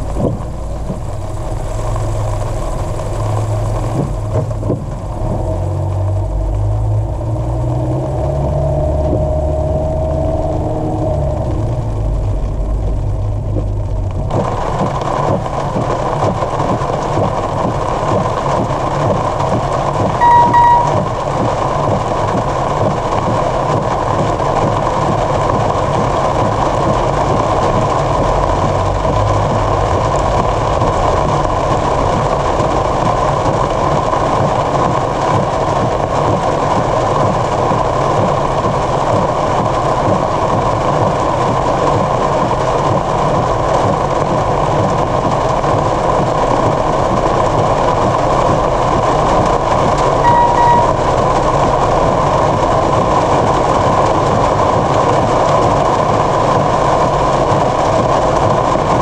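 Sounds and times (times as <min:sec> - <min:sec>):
heavy rain on car roof: 0:00.0 - 0:59.0
short beep: 0:20.2 - 0:21.1, 0:50.2 - 0:51.0.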